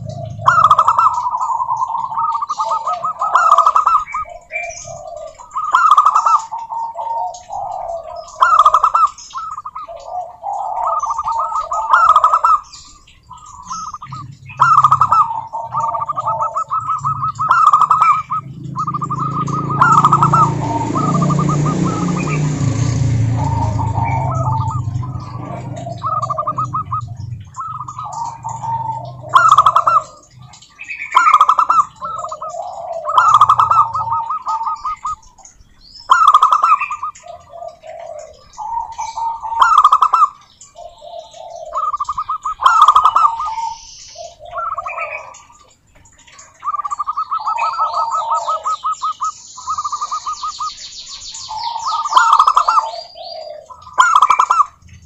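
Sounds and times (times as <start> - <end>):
doves cooing: 0.0 - 55.0
fast high chirping: 10.8 - 35.4.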